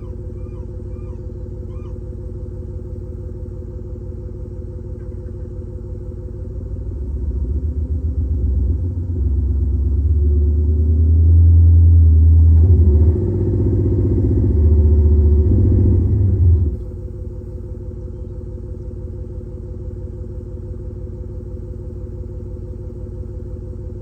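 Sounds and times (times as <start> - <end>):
hybrid engine running: 0.0 - 10.2
simulated exhaust revving rumble: 0.0 - 24.0.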